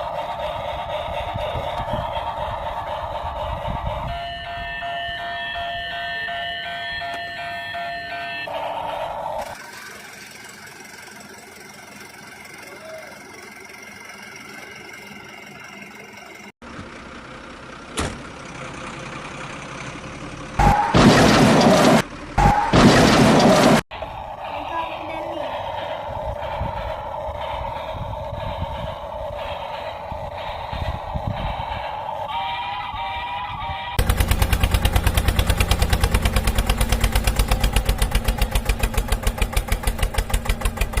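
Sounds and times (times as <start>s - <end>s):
engine-like hum with held tones: 0.0s - 41.0s
loud burst of noise: 20.6s - 41.0s.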